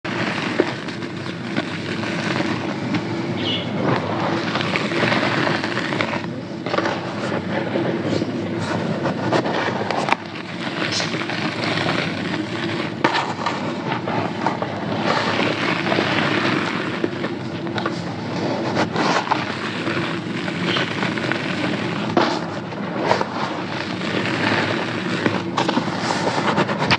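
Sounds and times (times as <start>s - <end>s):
gritty crunching of crumbling cement: 0.1s - 26.9s.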